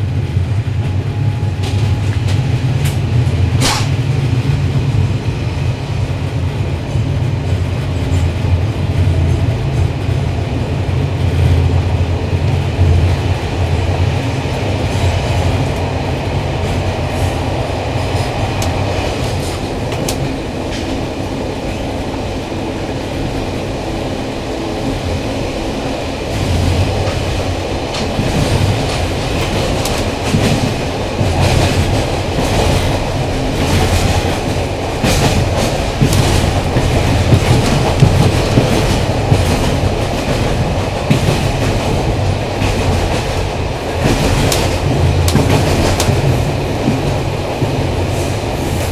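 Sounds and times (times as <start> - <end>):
train coach low rumble: 0.0 - 48.9
wheels clicking over rail joints: 26.2 - 48.9.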